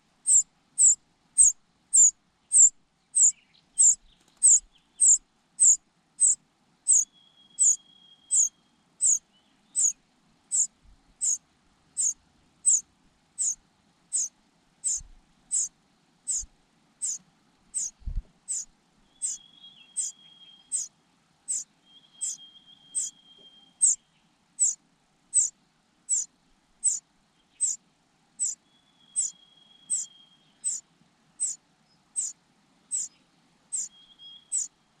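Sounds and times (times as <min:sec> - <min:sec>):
nestling begging peeps: 0:00.2 - 0:11.4, 0:12.0 - 0:12.8, 0:13.4 - 0:15.7, 0:16.3 - 0:20.9, 0:21.5 - 0:23.2, 0:23.8 - 0:24.0, 0:24.6 - 0:25.5, 0:26.1 - 0:27.0, 0:27.6 - 0:27.8, 0:28.4 - 0:28.6, 0:29.2 - 0:30.8, 0:32.2 - 0:33.1, 0:33.7 - 0:33.9, 0:34.5 - 0:34.7.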